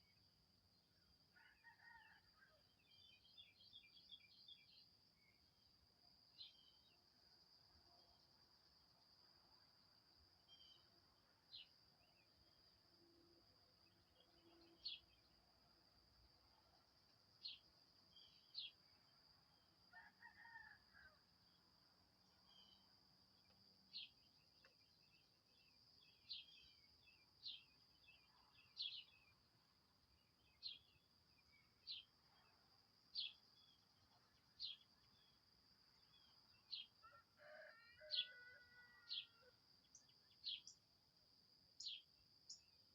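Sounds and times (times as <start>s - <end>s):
rooster crowing: 1.4s - 2.6s, 19.9s - 21.0s, 37.0s - 39.5s.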